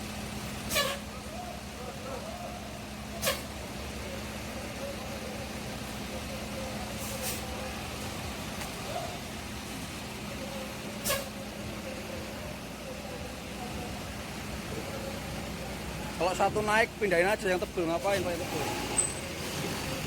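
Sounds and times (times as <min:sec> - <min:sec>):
bus engine hum: 0:00.0 - 0:20.0
air brake hisses: 0:00.7 - 0:01.1, 0:03.2 - 0:03.5, 0:07.0 - 0:07.6, 0:11.0 - 0:11.4.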